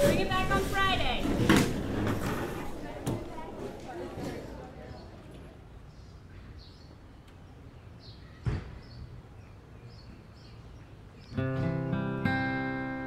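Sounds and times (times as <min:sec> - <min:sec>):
strummed acoustic guitar music: 0:11.4 - 0:13.0.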